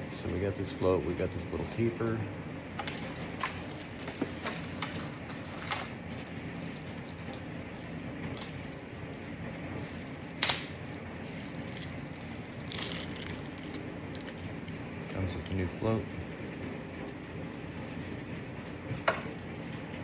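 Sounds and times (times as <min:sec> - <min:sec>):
low shop hum: 0:00.0 - 0:20.0
plastic parts clicking and rustling: 0:11.3 - 0:14.4.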